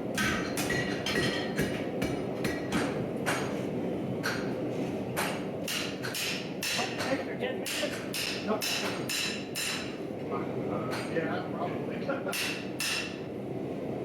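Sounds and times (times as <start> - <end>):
hammer striking steel on anvil: 0.2 - 3.5, 5.2 - 10.0, 12.3 - 13.2.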